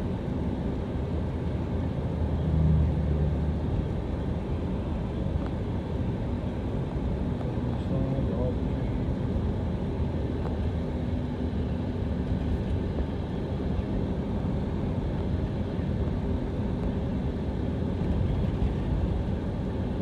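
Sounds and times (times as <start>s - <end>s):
car engine rumble: 0.0s - 20.0s.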